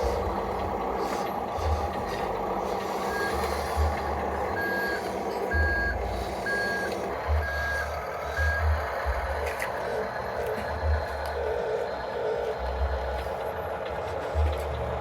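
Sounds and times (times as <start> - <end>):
low irregular rumble: 0.0 - 15.0
electronic reversing beeper: 4.5 - 8.8.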